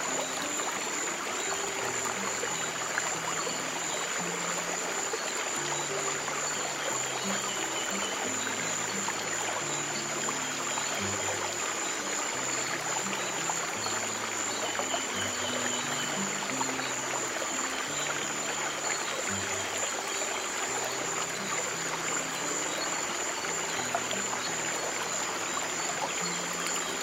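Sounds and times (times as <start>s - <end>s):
stream water trickling: 0.0s - 27.0s.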